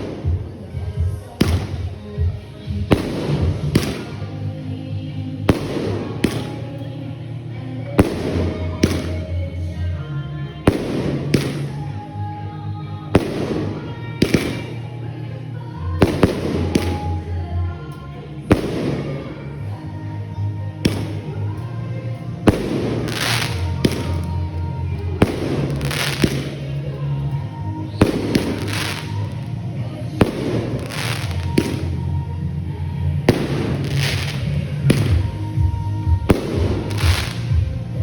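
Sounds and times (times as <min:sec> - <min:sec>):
fireworks bangs with crackling: 0:00.0 - 0:04.3, 0:05.5 - 0:06.7, 0:08.0 - 0:09.4, 0:10.6 - 0:11.9, 0:13.1 - 0:14.8, 0:16.0 - 0:17.2, 0:18.5 - 0:19.4, 0:20.8 - 0:21.6, 0:22.4 - 0:24.5, 0:25.2 - 0:26.8, 0:28.0 - 0:29.5, 0:30.2 - 0:32.0, 0:33.3 - 0:35.4, 0:36.3 - 0:37.6
music with bass line: 0:20.8 - 0:38.0.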